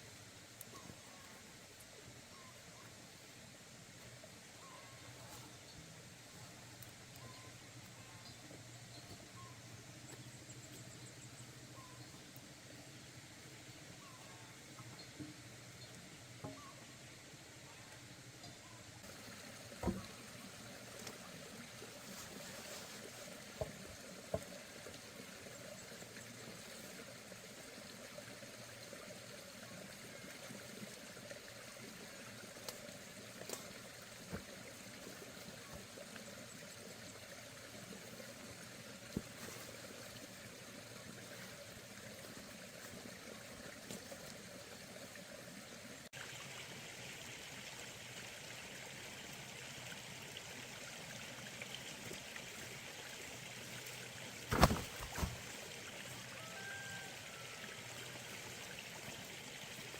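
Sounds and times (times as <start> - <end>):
water trickling: 18.2 - 59.9.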